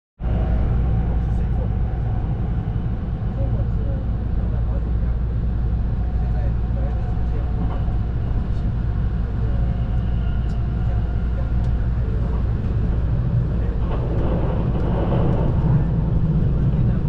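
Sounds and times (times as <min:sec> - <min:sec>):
train wheels rumbling: 0:00.3 - 0:17.0.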